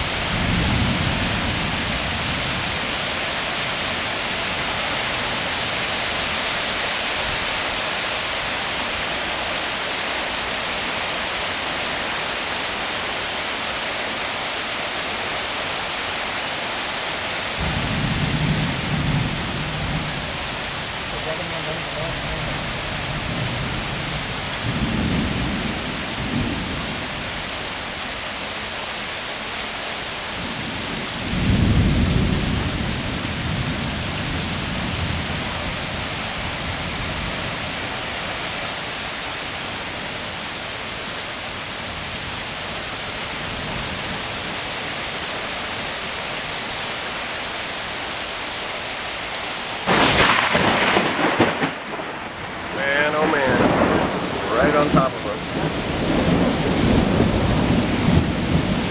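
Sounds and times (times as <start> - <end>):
thunder rumbling: 0.0 - 2.9, 17.6 - 27.2, 30.4 - 35.4, 49.9 - 58.9
heavy rain hissing: 0.0 - 58.9.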